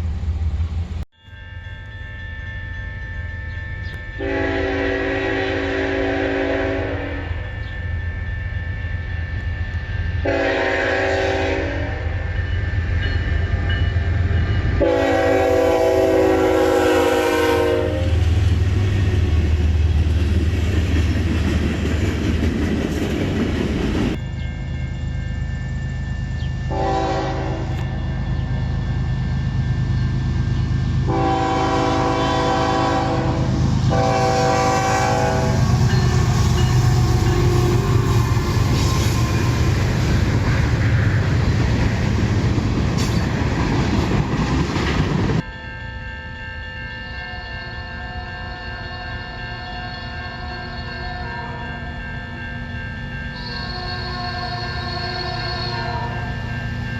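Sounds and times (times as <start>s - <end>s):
train rumble: 0.0s - 46.5s
locomotive air horn blasts: 4.2s - 7.3s, 10.2s - 12.2s, 14.8s - 18.3s, 26.7s - 28.0s, 31.1s - 35.9s.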